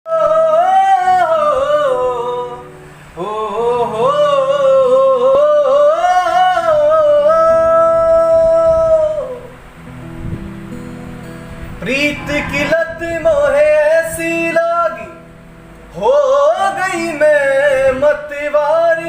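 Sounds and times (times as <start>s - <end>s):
high-pitched wordless solo singing: 11.8s - 19.0s.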